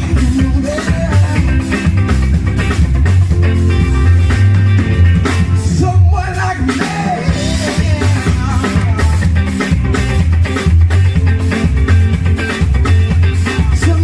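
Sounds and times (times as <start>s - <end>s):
person singing: 0.0s - 2.0s, 5.6s - 9.6s, 13.4s - 14.0s
live band playing: 0.0s - 14.0s.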